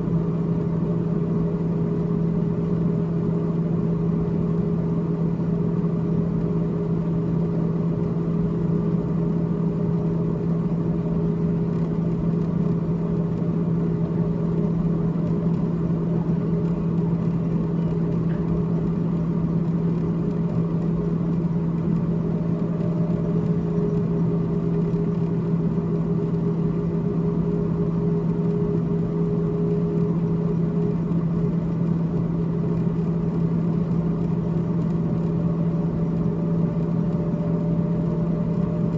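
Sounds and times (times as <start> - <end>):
freezer fan humming: 12.9 - 38.9.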